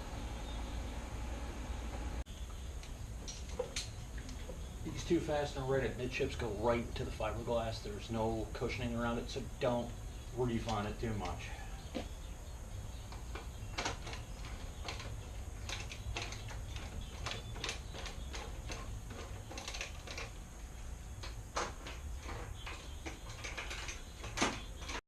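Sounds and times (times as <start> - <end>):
low hum: 0.0 - 23.9
hand tools clicking on metal: 10.6 - 11.4, 13.1 - 20.4.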